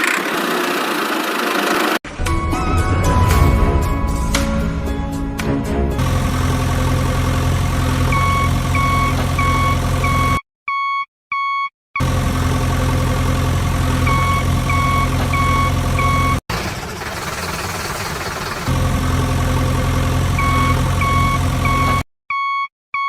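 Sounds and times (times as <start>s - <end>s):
rough engine idling: 0.0s - 10.3s, 12.0s - 22.0s
heavy vehicle engine idling: 5.8s - 10.3s, 12.0s - 22.0s
reversing alarm beeping: 8.1s - 11.7s, 14.1s - 16.4s, 20.4s - 23.0s.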